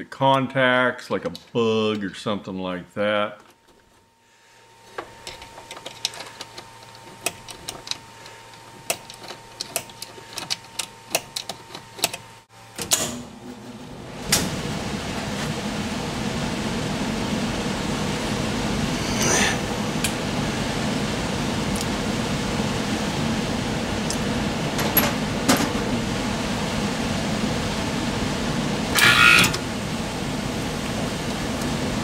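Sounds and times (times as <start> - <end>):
faint steady hum: 0.0 - 32.0
rushing noise with low hum: 13.8 - 29.0.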